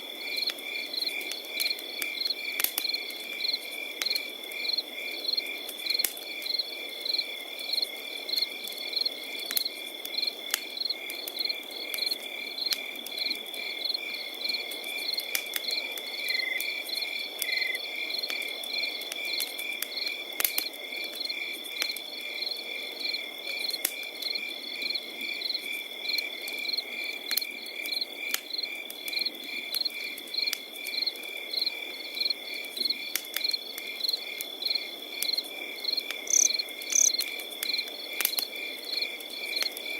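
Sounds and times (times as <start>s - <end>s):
crickets chirping: 0.0s - 20.3s, 20.9s - 39.9s
campfire crackling and popping: 0.1s - 39.9s
high insect trill: 36.2s - 37.3s.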